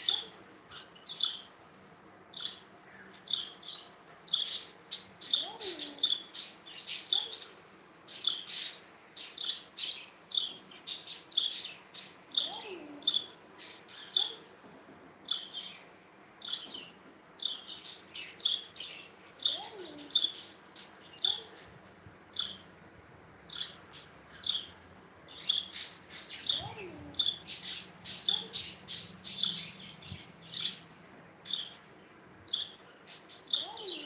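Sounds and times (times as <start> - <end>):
budgerigars chirping: 25.4 - 30.8.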